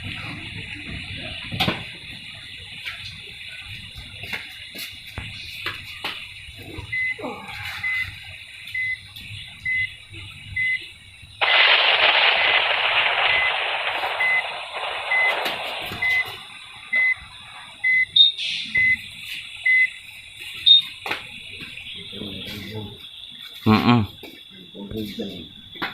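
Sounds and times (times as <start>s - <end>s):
reversing alarm beeping: 6.9s - 21.0s
loud hiss: 11.1s - 23.8s.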